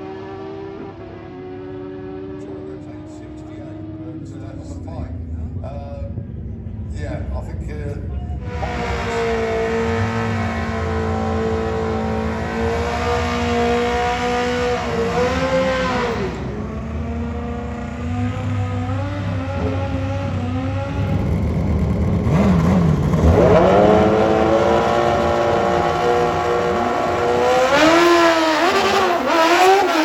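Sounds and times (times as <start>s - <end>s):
motorcycle engines at high revs: 8.4s - 30.0s.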